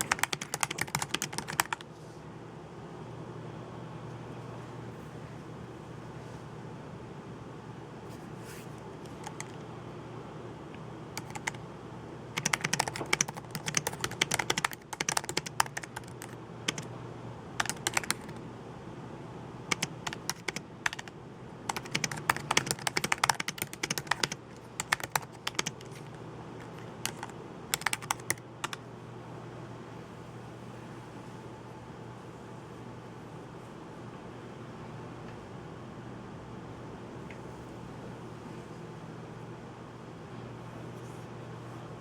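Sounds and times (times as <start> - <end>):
typing on computer keyboard: 0.0 - 1.9, 9.0 - 9.7, 11.2 - 11.6, 12.4 - 16.9, 17.6 - 18.4, 19.7 - 28.8
steady low hum: 0.0 - 42.0.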